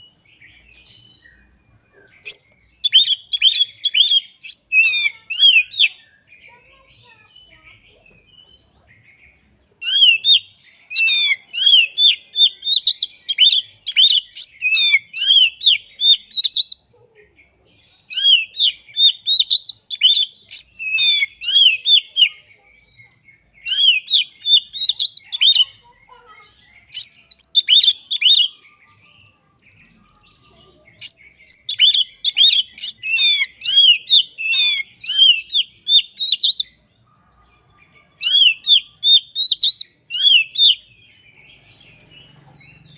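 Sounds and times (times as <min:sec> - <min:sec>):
bird singing chirps and whistles: 0:00.0 - 0:17.0, 0:17.8 - 0:36.9, 0:37.7 - 0:42.9.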